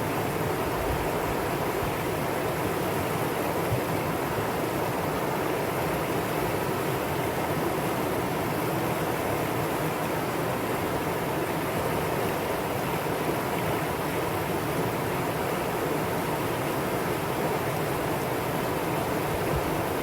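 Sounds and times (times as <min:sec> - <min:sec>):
stream water rushing over rocks: 0:00.0 - 0:20.0.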